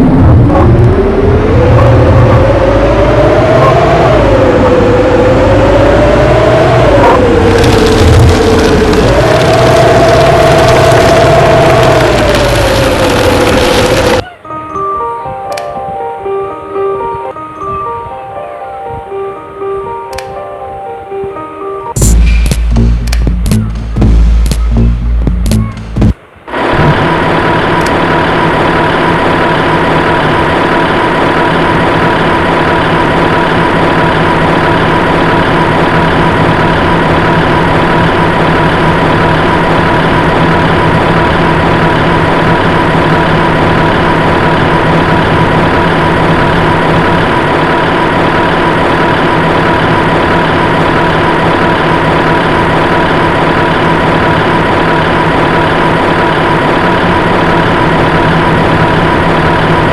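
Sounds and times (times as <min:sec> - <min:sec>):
heavy vehicle engine idling: 0:22.0 - 0:59.9.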